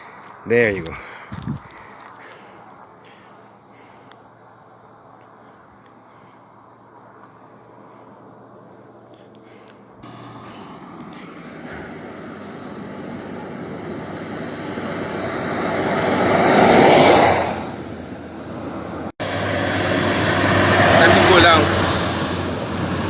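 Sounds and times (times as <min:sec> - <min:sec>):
vehicle passing on highway: 0:09.5 - 0:23.0.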